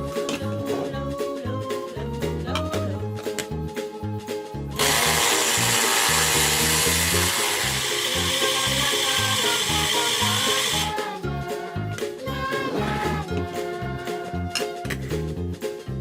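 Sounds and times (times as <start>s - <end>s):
background music with steady beat: 0.0s - 16.0s
small toy motor running: 4.8s - 10.9s.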